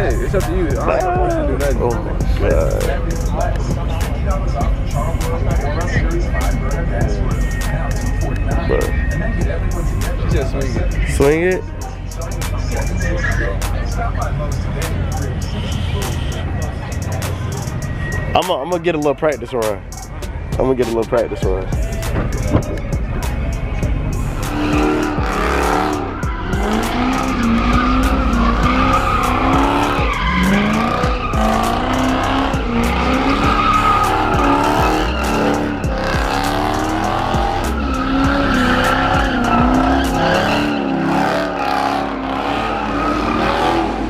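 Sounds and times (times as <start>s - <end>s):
tyres squealing: 10.0s - 20.2s, 20.9s - 44.0s
car engine revving hard: 21.8s - 44.0s.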